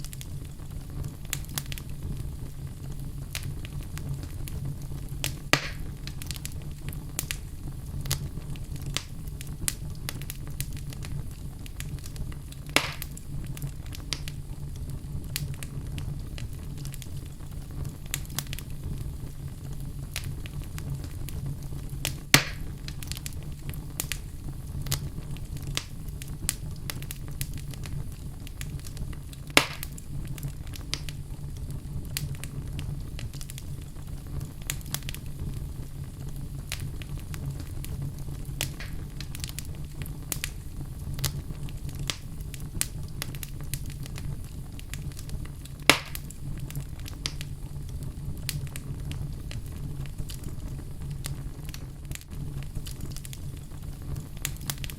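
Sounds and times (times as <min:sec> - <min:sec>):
fire burning with crackles: 0:00.0 - 0:54.9
loud sharp pops: 0:05.2 - 0:06.3, 0:12.7 - 0:13.2, 0:22.1 - 0:22.8, 0:29.5 - 0:30.0, 0:38.6 - 0:39.5, 0:45.8 - 0:46.3.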